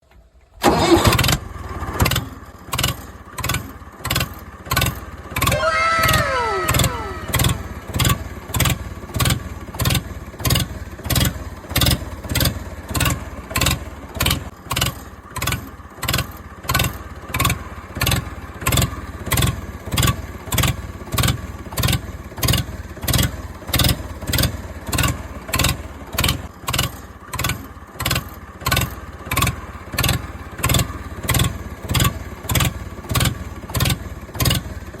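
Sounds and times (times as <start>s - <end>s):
rhythmic pulsing engine-like sound: 2.8s - 35.0s
falling whistle-like glide: 5.5s - 7.7s.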